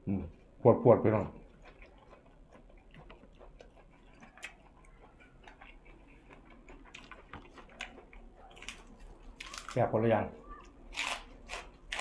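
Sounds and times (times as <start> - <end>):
soft chewing with mouth clicks: 0.0 - 9.8.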